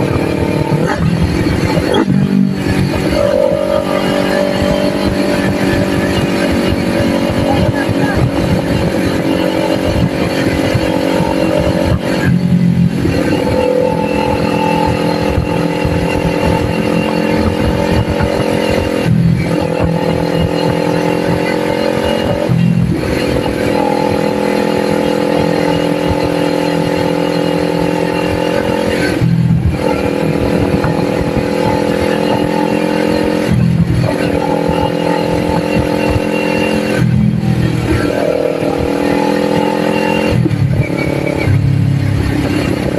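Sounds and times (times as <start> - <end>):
motorcycle engine running: 0.0 - 42.9
wind noise: 0.0 - 42.9.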